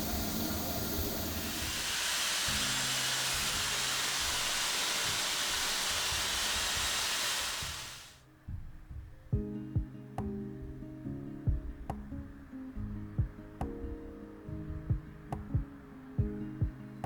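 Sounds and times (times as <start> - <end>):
steady hissing noise: 0.0 - 17.0.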